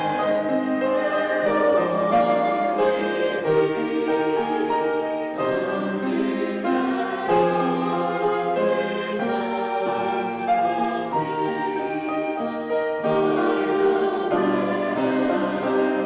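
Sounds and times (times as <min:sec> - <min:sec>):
choir singing held chords: 0:00.0 - 0:16.0.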